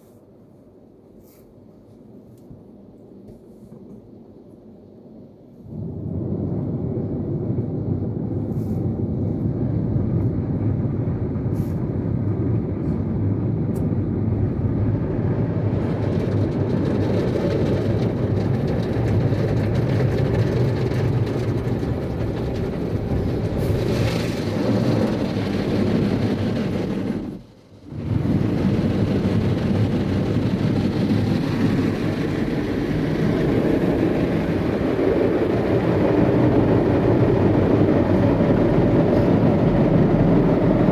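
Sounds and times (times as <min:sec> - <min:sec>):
car wash brushes and water: 0:14.8 - 0:36.0.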